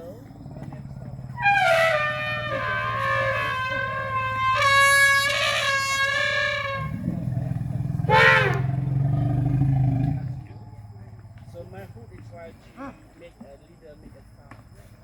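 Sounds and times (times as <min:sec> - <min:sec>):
low pulsing rumble: 0:00.2 - 0:12.1
elephants trumpeting: 0:01.3 - 0:10.4.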